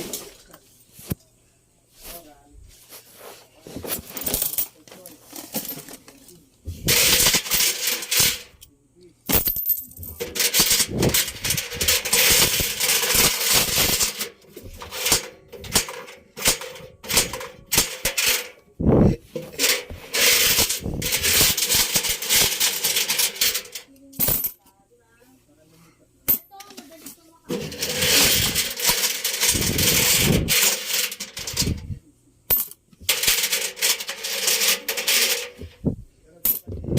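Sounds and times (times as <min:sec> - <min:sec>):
coins clattering in washing machine drum: 0:03.9 - 0:06.0, 0:06.8 - 0:08.6, 0:09.3 - 0:18.6, 0:19.4 - 0:24.6, 0:26.3 - 0:26.8, 0:27.5 - 0:31.9, 0:32.5 - 0:35.8, 0:36.4 - 0:36.7
steady hum: 0:06.2 - 0:26.4.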